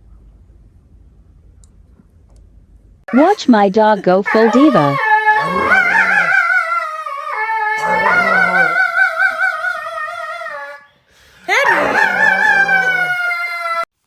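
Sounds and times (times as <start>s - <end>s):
dog howling: 4.3s - 13.9s.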